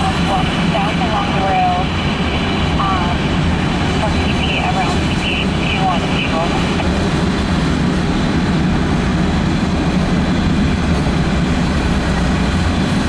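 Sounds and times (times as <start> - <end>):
steel wheels rumbling on rails: 0.0 - 13.0.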